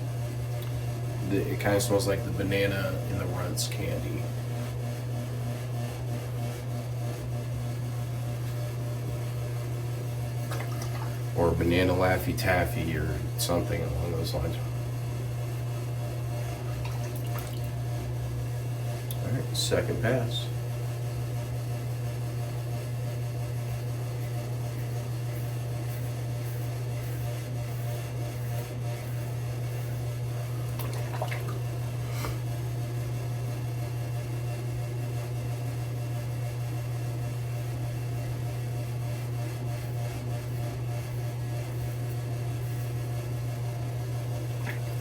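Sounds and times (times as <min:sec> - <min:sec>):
steady low hum: 0:00.0 - 0:45.0
razor scraping skin: 0:24.8 - 0:30.0.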